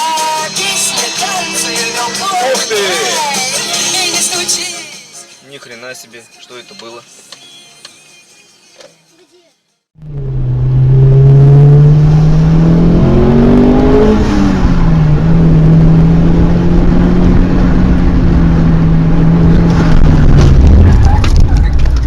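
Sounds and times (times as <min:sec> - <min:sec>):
vehicle engine under load: 0:10.0 - 0:22.0.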